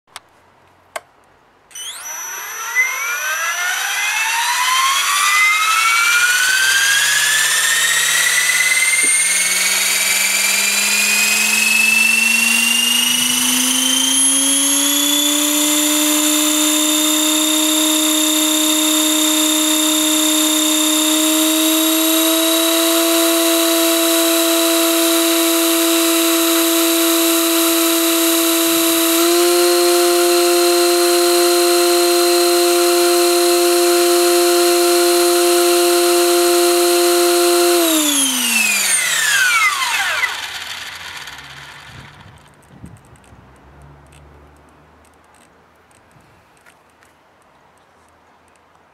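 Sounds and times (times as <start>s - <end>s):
electric helicopter rotor whine: 1.7s - 42.6s.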